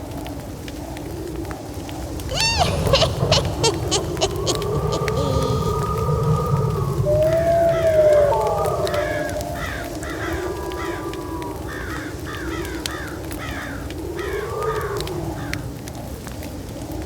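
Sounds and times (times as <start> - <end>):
crows cawing: 2.3 - 6.0.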